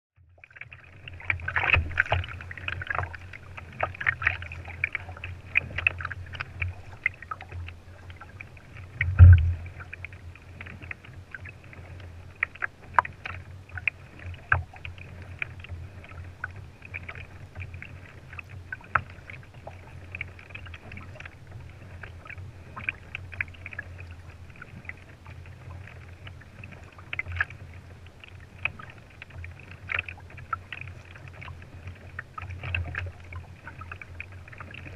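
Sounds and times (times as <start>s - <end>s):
water splashing: 0.4s - 34.9s
low rumble: 8.8s - 10.5s
knocks against kayak hull: 9.0s - 9.7s
loud thump: 9.1s - 9.6s.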